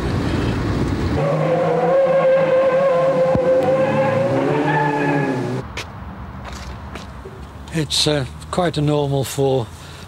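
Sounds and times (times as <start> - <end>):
car engine droning: 0.1 - 5.6.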